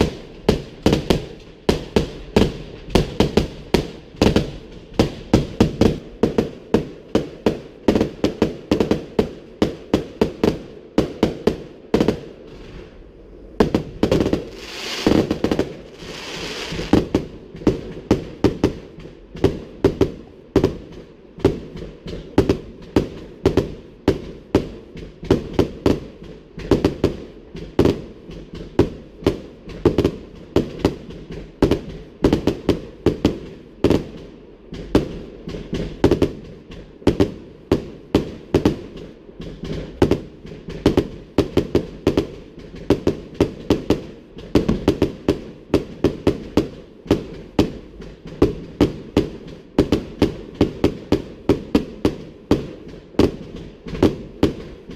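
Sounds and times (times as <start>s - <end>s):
fireworks booming: 0.0s - 54.9s
fireworks crackle: 0.0s - 54.9s.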